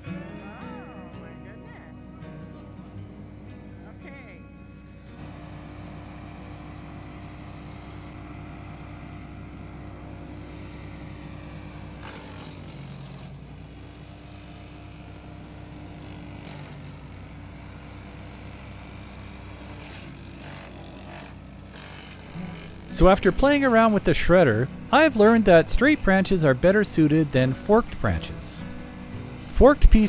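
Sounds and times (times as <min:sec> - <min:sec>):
chipper shredder running: 0:00.0 - 0:30.0.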